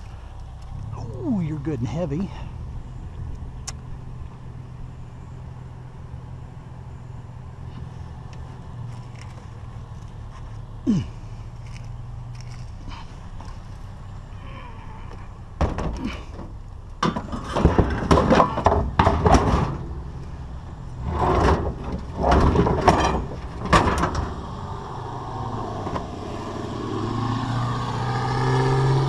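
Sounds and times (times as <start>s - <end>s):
car with droning exhaust: 0.0s - 17.0s, 19.7s - 29.0s
scrap metal clanking and scraping: 15.6s - 24.6s.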